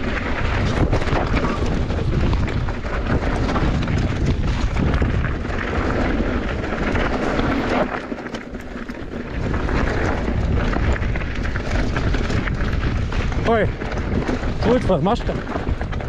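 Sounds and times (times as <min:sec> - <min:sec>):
tyre rumble: 0:00.0 - 0:16.0
wind buffeting microphone: 0:00.0 - 0:16.0.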